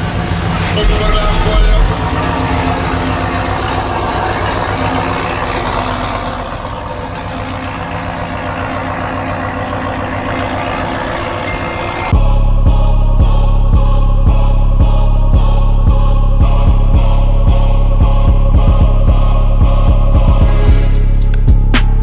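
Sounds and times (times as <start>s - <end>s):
truck engine idling: 0.0s - 12.2s.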